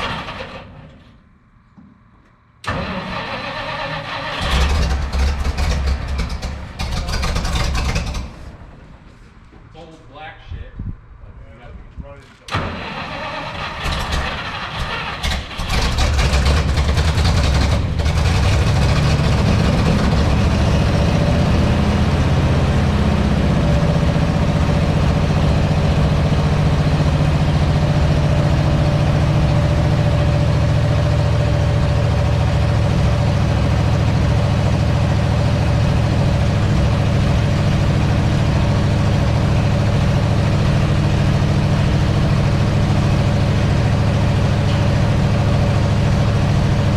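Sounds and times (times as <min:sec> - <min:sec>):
truck engine cranking and idling: 0:00.0 - 0:01.5, 0:02.6 - 0:09.2, 0:12.5 - 0:46.9.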